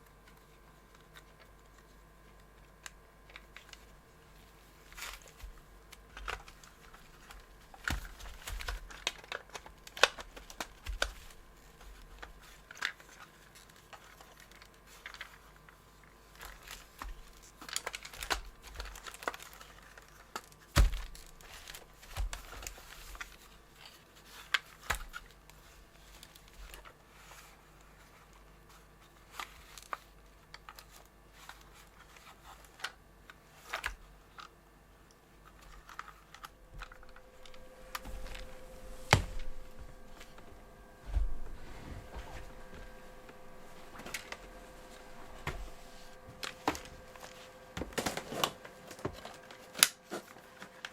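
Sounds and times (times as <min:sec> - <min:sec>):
plastic parts clicking and tapping: 0:05.0 - 0:15.4.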